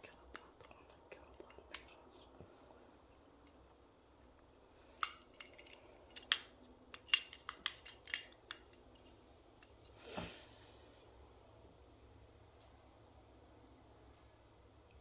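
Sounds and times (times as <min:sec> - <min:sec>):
clicks of small plastic parts: 0:05.0 - 0:09.2.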